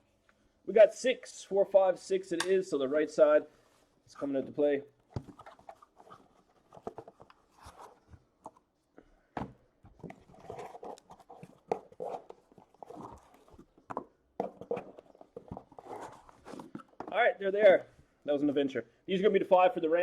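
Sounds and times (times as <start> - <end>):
cardboard boxes knocking and scraping: 9.4 - 17.2.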